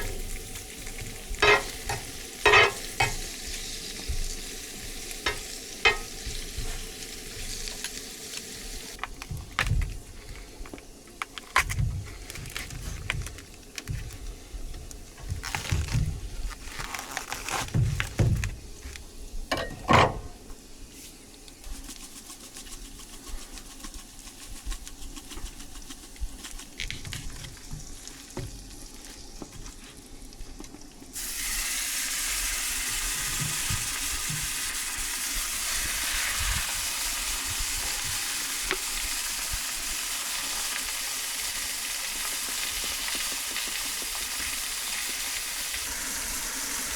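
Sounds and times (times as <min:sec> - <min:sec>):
food sizzling on a griddle: 0:00.0 - 0:14.0, 0:20.5 - 0:46.9
handling knocks and thumps: 0:09.1 - 0:10.1, 0:15.2 - 0:16.5, 0:17.5 - 0:20.4.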